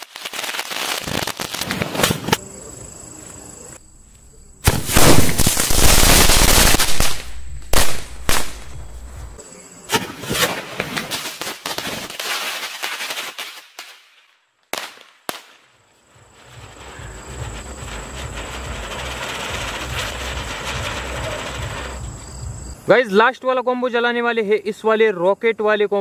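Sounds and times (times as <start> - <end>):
firework fizzing hiss: 0.0 - 2.4, 4.6 - 13.9, 16.1 - 22.8
firework bangs: 0.0 - 2.5, 4.6 - 14.0, 14.7 - 22.8
fireworks crackling: 0.0 - 2.5, 4.6 - 22.8.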